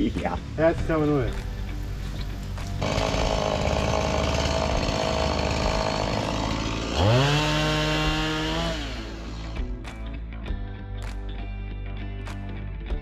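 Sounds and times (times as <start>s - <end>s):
chainsaw cutting wood: 0.9s - 9.9s.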